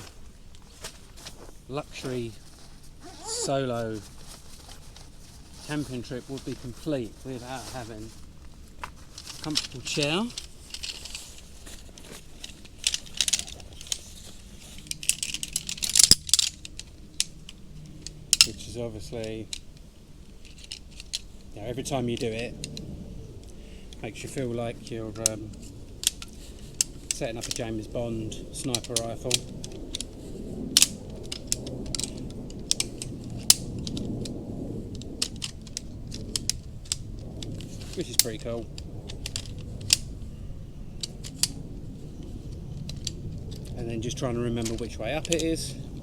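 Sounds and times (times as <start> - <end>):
low steady rumble: 0.0 - 46.0
chair poles clicking and rattling: 8.8 - 19.8, 20.4 - 22.9, 24.9 - 34.2, 35.0 - 40.2, 44.6 - 45.7.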